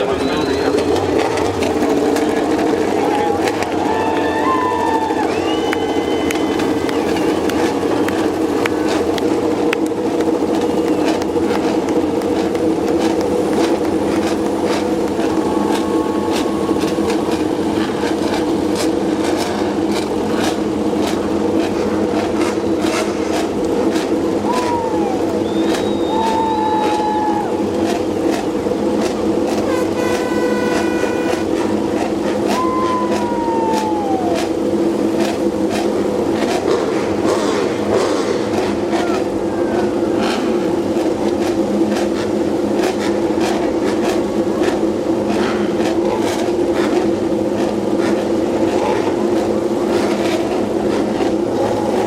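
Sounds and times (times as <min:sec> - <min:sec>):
whistle-like tone: 0:00.0 - 0:00.8, 0:05.2 - 0:07.5, 0:24.5 - 0:27.3
race bike engines droning: 0:00.0 - 0:52.0.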